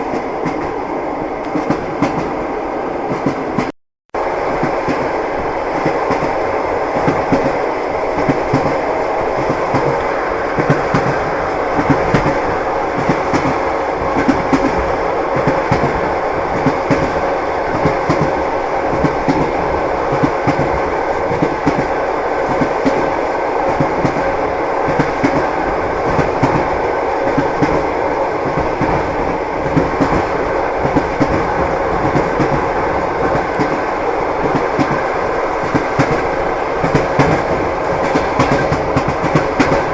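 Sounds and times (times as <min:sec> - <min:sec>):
train running noise: 0:00.0 - 0:39.9
wheels clacking over rail joints: 0:28.5 - 0:39.9.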